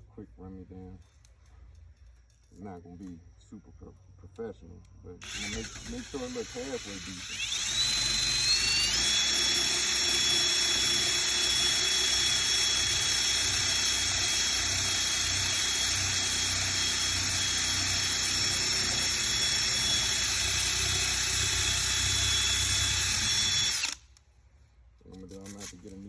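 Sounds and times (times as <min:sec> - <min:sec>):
power sander whining: 0:05.2 - 0:24.0.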